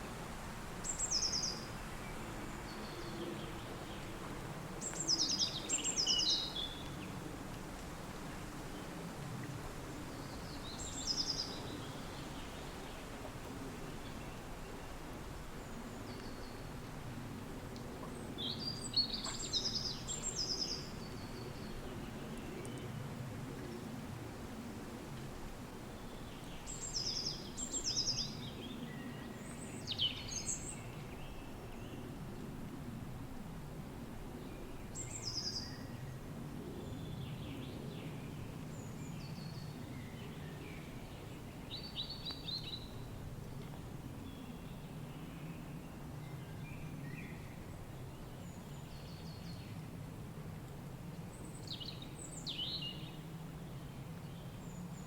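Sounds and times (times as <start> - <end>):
songbird singing: 0.8 - 4.2, 4.8 - 7.1, 10.1 - 13.0, 18.0 - 23.0, 26.0 - 32.2, 34.4 - 36.2, 36.8 - 49.9, 51.3 - 55.0.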